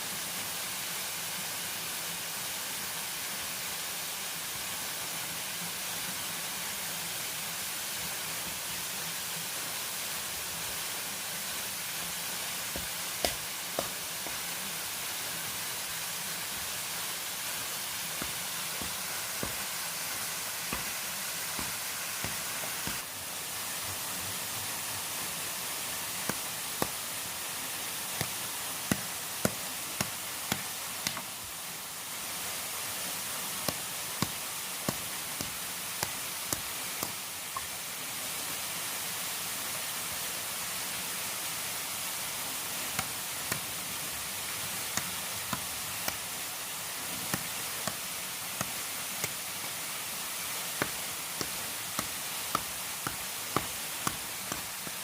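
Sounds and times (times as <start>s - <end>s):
water hissing: 9.4s - 23.8s, 24.7s - 37.9s, 41.4s - 55.0s.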